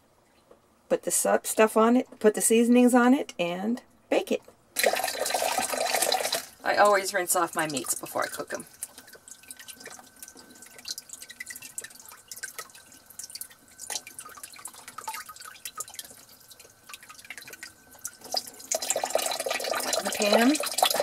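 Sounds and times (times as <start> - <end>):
water dripping in a sink: 4.4 - 21.0.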